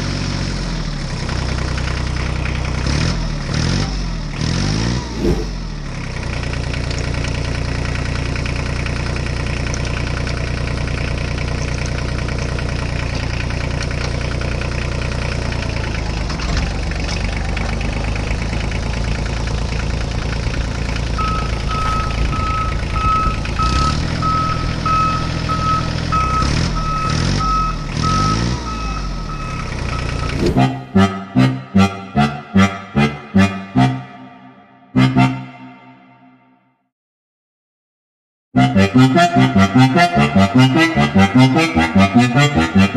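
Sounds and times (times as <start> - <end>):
tractor engine running: 20.4 - 30.9
high reversing beep: 20.7 - 30.8.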